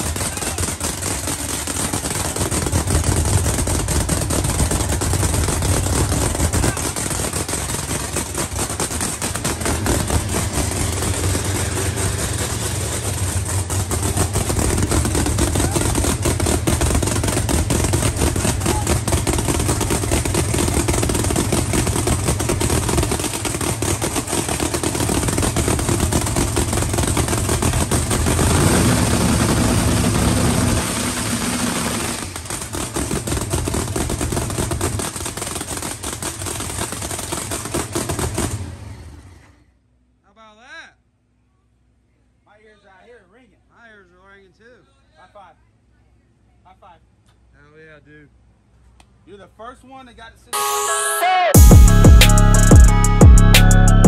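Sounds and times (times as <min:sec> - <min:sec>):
race car engine idling: 0:00.0 - 0:39.6, 0:51.6 - 0:54.0.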